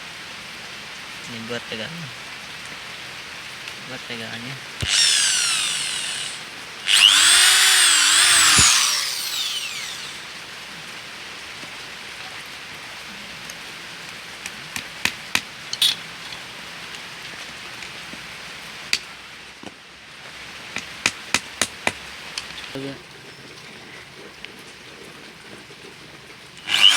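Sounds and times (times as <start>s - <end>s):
electric hand drill boring: 4.8s - 10.4s, 26.6s - 26.9s.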